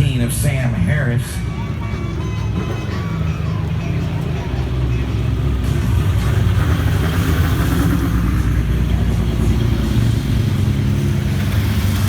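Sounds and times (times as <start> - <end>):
race car engines droning: 0.0 - 12.0
car passing close: 4.0 - 12.0.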